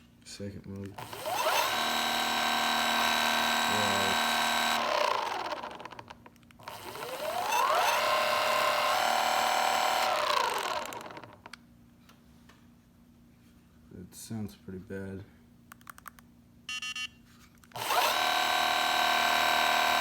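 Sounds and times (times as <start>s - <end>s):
motor clicking: 0.8s - 9.1s, 9.7s - 11.6s, 17.6s - 20.0s
electric motor whining: 1.0s - 11.5s, 17.8s - 20.0s.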